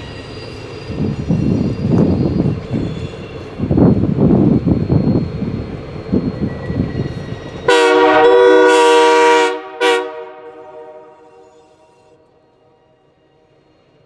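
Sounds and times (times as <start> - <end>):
steam whistle blowing: 7.6 - 12.3.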